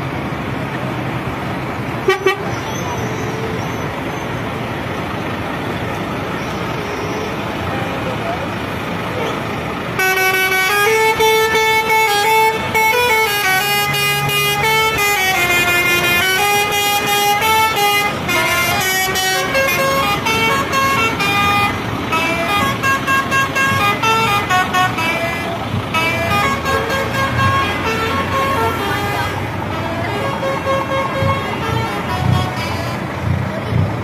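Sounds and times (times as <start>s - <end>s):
lorry musical air horns: 10.0s - 33.2s.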